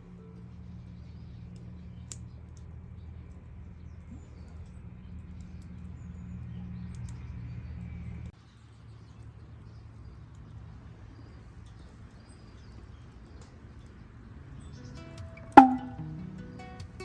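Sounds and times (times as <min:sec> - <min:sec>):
low steady hum: 0:00.0 - 0:17.0
faint sharp clicks: 0:01.5 - 0:03.4, 0:04.0 - 0:08.4.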